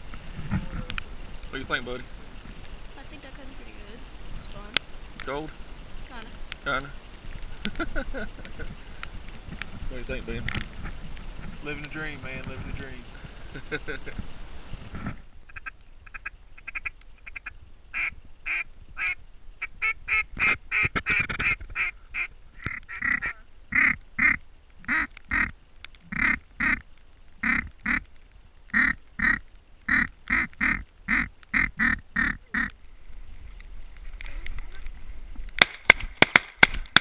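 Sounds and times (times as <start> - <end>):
duck call quacks: 19.8 - 25.5, 26.1 - 26.8, 27.4 - 28.0, 28.7 - 32.7.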